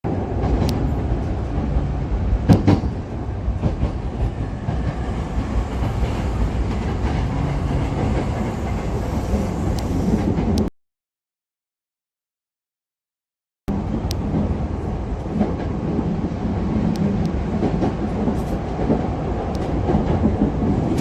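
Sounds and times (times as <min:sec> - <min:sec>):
electric train rumbling on rails: 0:00.1 - 0:10.7, 0:13.7 - 0:21.0
sharp clicks of train wheels: 0:00.4 - 0:10.7, 0:16.7 - 0:21.0.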